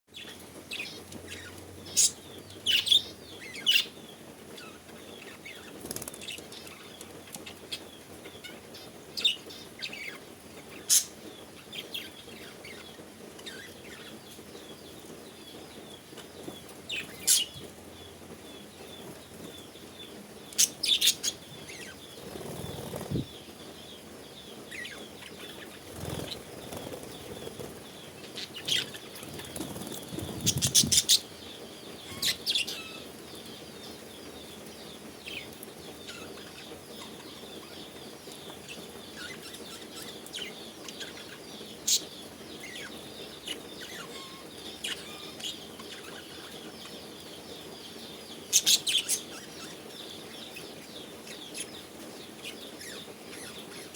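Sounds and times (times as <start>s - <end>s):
wing flaps: 22.2s - 23.3s
high bird chirping: 33.8s - 53.9s.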